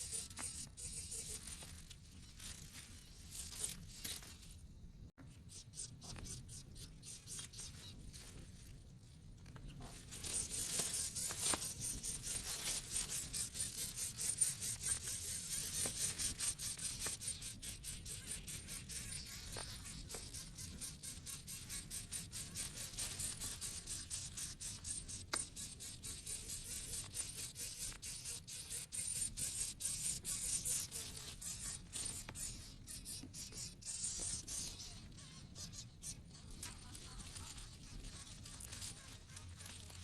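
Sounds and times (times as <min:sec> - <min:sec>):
nestling birds cheeping: 0:00.0 - 0:02.3, 0:10.1 - 0:39.8.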